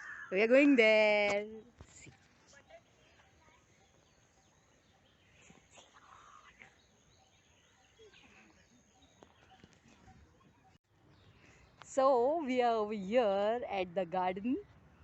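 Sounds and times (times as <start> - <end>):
distant bird calls: 1.5 - 11.9.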